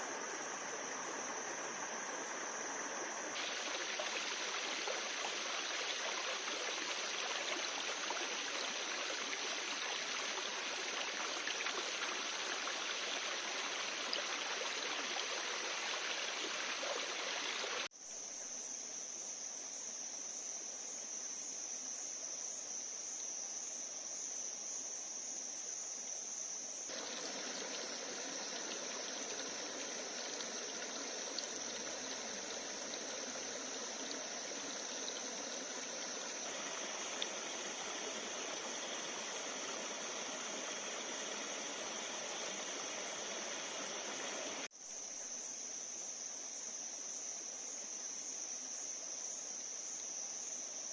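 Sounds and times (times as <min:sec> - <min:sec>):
stream water running: 0:00.0 - 0:17.9, 0:26.8 - 0:44.7
high-pitched insect drone: 0:26.9 - 0:44.7.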